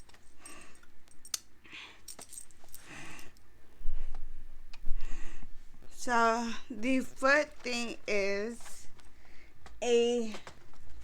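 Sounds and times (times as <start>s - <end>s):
light clicks and jingles: 0.0s - 3.5s.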